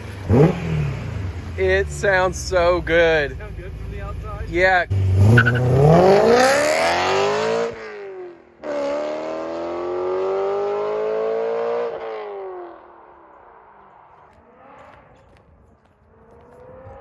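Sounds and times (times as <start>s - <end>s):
car engine accelerating hard: 0.0s - 15.4s.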